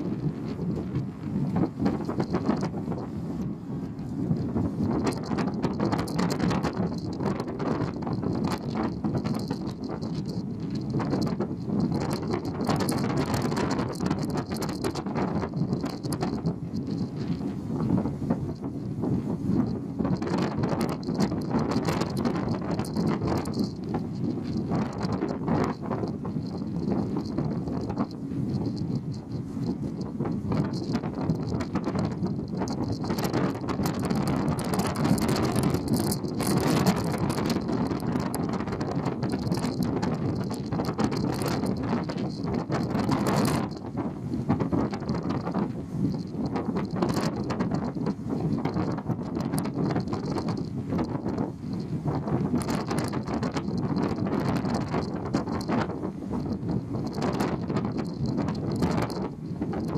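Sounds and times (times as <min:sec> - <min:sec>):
ferry low rumble and rushing: 0:00.0 - 0:59.9
wind buffeting microphone: 0:00.0 - 0:59.9
short crackles: 0:18.3 - 0:59.9.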